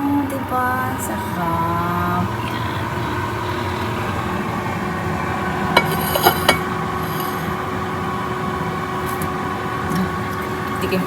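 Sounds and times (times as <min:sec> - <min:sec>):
kitchen hum: 0:00.0 - 0:11.0
utensil clinking on cookware: 0:05.8 - 0:07.5.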